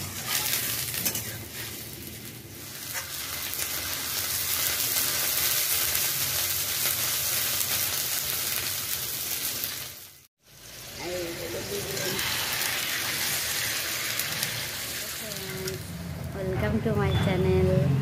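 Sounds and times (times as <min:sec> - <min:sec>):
onions sizzling in oil: 0:00.0 - 0:16.3.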